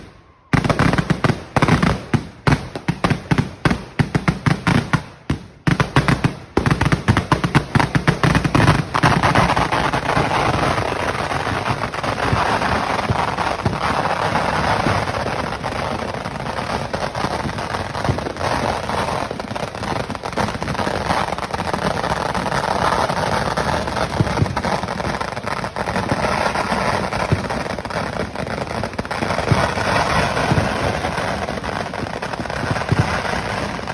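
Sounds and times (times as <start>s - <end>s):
dense crackle of explosions: 0.0s - 33.9s
firecracker bangs: 29.2s - 33.9s.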